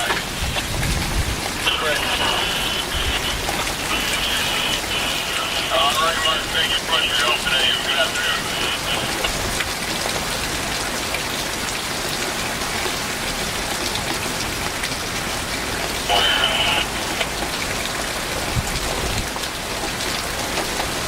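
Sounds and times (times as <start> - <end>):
person's voice: 0.0 - 9.8, 15.8 - 19.4
steady rain hiss: 0.0 - 21.0.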